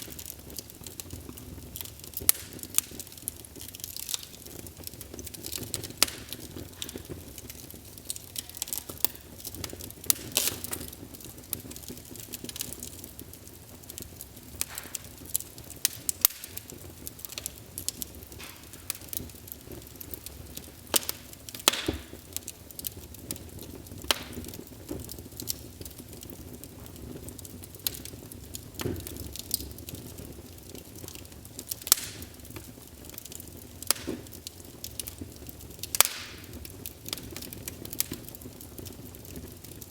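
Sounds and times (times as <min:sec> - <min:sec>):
hiss of burning: 0:00.0 - 0:39.9
wood fire crackling: 0:00.0 - 0:39.9.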